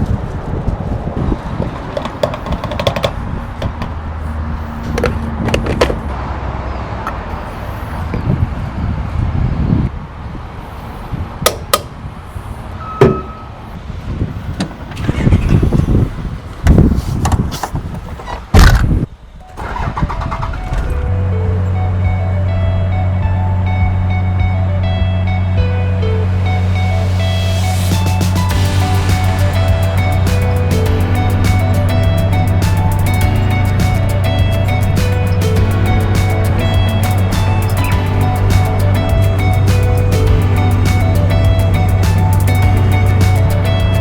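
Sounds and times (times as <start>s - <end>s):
wind noise: 0.0s - 6.2s, 7.1s - 44.0s
motor vehicle low rumble: 0.0s - 44.0s
knocks and clicks: 1.7s - 4.0s.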